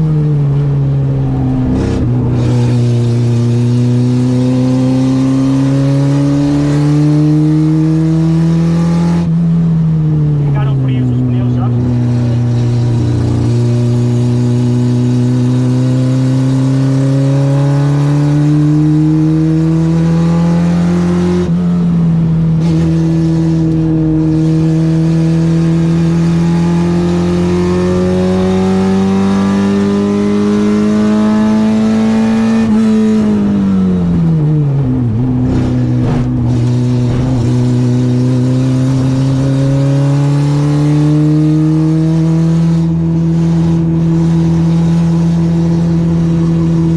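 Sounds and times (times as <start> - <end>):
car engine revving on track: 0.0 - 46.9.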